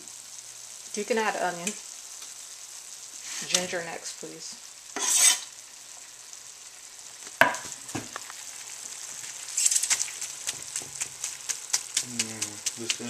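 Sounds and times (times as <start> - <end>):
food sizzling in wok: 0.0 - 13.0
utensil clicking against wok: 9.6 - 13.0.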